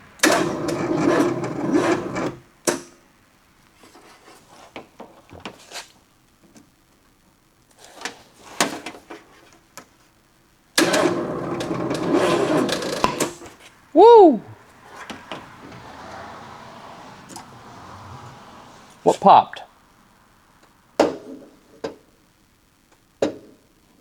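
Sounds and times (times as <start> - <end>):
starter motor cranking: 0.2 - 2.4, 10.8 - 13.4.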